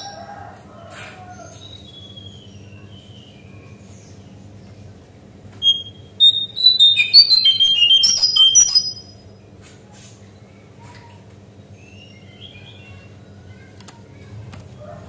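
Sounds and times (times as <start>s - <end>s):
bird whistling song: 5.6s - 9.2s.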